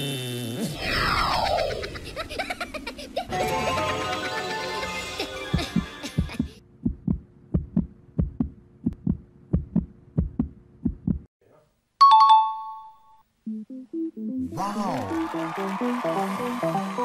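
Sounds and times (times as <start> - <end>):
music: 3.3 - 6.5, 13.4 - 17.0
heartbeat thumps: 5.6 - 11.3.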